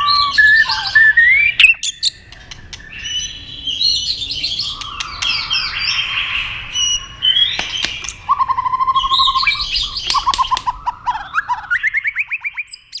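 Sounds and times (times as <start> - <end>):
bird whistles and chirps: 0.0 - 13.0
bird clicks: 1.6 - 2.9, 4.7 - 5.4, 7.5 - 8.3, 10.0 - 10.8.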